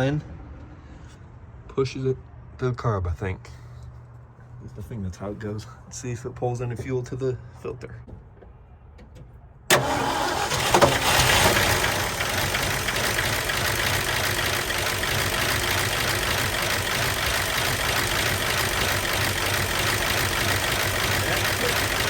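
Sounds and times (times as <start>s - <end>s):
truck engine starting and idling: 9.7s - 22.0s.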